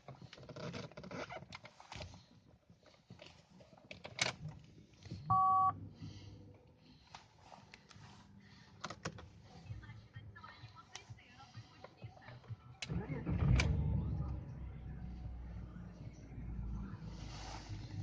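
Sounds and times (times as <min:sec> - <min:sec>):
faint low hum: 0:04.5 - 0:18.0
short two-tone electronic beep: 0:05.3 - 0:05.8.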